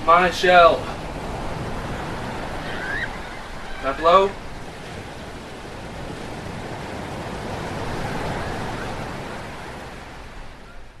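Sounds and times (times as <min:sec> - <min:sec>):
ocean wave washing in: 0:00.0 - 0:11.0.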